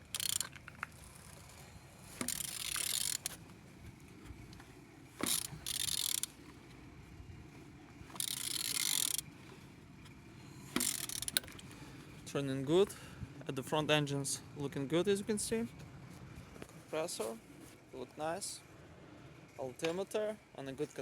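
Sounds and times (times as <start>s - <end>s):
ratchet wrench ratcheting: 0.0s - 3.4s, 5.2s - 6.5s, 8.1s - 9.3s, 10.6s - 11.6s.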